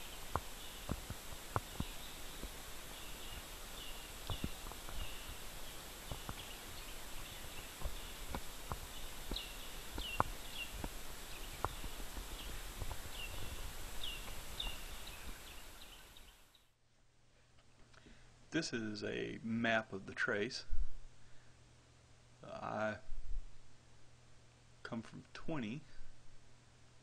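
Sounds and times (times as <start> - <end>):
high chirping calls: 0.0 - 16.6
faint steady hiss: 0.0 - 27.0.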